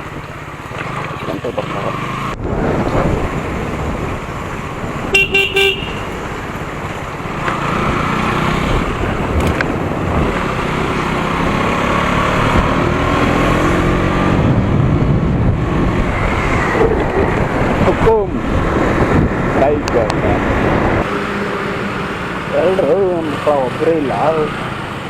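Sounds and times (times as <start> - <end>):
motorcycle engine revving: 0.0 - 25.0
wind over microphone: 2.3 - 21.1
vehicle horn beeps: 5.1 - 6.2.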